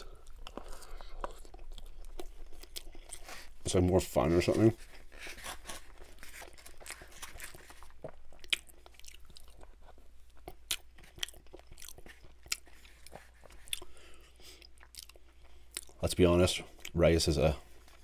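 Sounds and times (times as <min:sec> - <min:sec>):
person chewing food: 0:00.0 - 0:16.0, 0:16.7 - 0:17.0.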